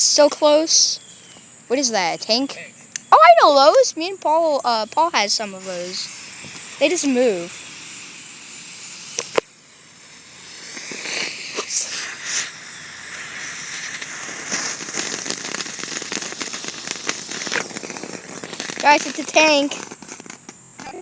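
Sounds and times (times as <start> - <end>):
firework crackling: 1.8 - 21.0
hiss of sparks: 4.7 - 20.5
firework pop: 5.6 - 21.0.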